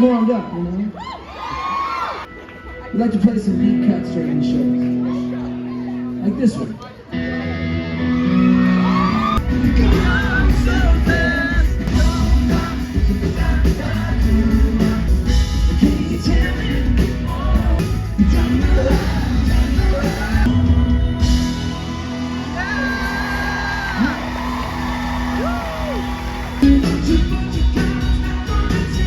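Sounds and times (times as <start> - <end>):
live pop-rock band: 7.0 - 29.0
lead vocals singing: 9.2 - 29.0.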